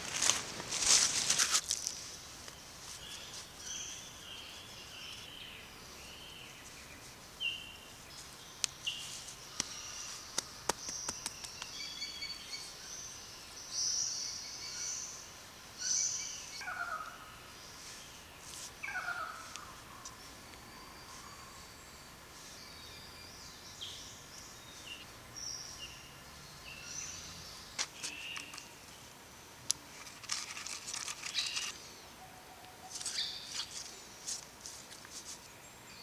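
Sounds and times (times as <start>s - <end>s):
faint sharp clicks: 9.5s - 11.9s
birds chirping and whistling: 32.9s - 33.8s.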